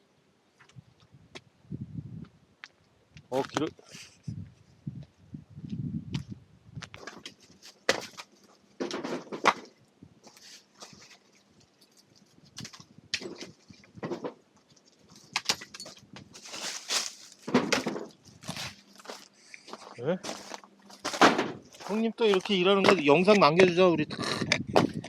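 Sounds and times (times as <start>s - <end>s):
firewood knocking and clattering: 7.0s - 9.8s, 12.6s - 14.4s, 15.2s - 18.2s, 20.2s - 23.8s
wood shuffling: 15.0s - 23.5s.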